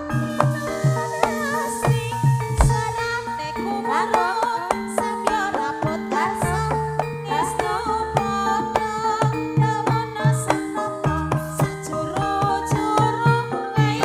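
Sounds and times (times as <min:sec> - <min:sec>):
deep held bass notes: 0:00.0 - 0:03.9
hand drum strokes: 0:00.0 - 0:06.6
struck metal tones: 0:00.0 - 0:13.5
gamelan ensemble music: 0:00.0 - 0:14.0.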